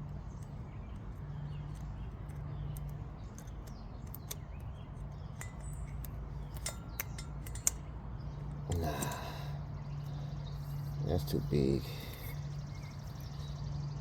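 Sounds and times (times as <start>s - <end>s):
light clicks: 0.0s - 11.0s
birds chirping: 0.0s - 14.0s
steady low hum: 0.0s - 14.0s.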